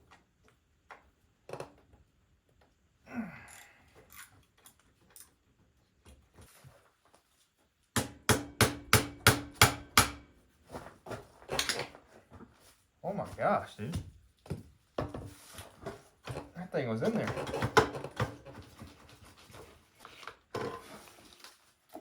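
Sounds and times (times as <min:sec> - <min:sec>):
hammer striking metal: 0:08.0 - 0:10.2.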